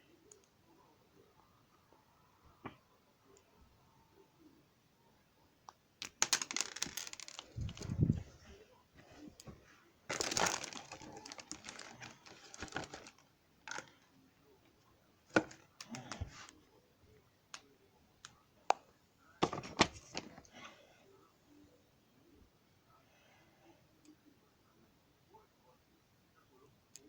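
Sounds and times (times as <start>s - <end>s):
plastic toy bricks clicking: 6.0s - 7.5s
plastic rustling: 6.0s - 14.0s, 19.4s - 20.5s.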